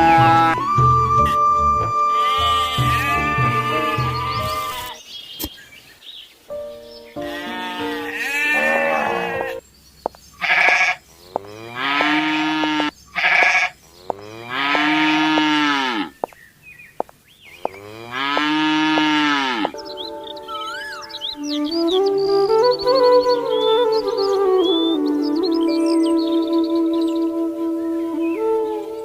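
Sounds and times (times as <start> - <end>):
farm animal bleating: 0.0 - 5.0, 7.2 - 9.6, 10.4 - 16.1, 17.6 - 19.8.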